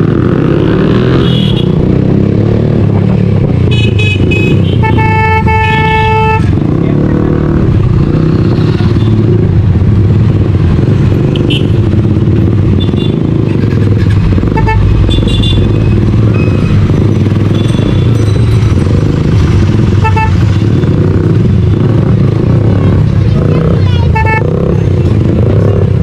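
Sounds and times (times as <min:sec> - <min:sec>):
motorcycle engine and exhaust: 0:00.0 - 0:26.0.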